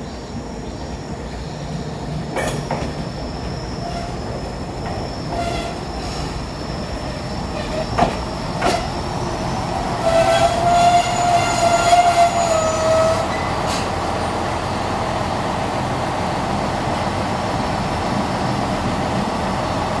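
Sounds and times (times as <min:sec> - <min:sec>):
railcar brake squeal: 0:02.2 - 0:14.4.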